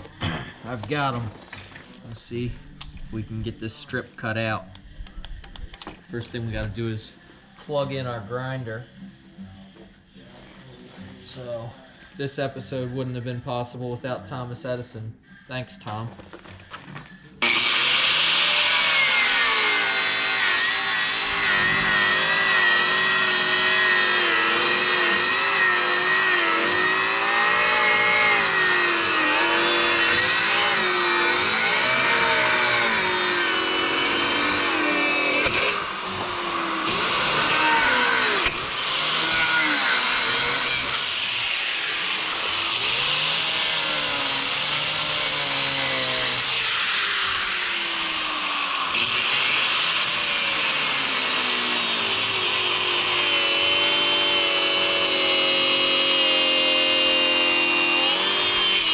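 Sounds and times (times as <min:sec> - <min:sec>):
angle grinder cutting rubber: 0:17.4 - 0:58.9.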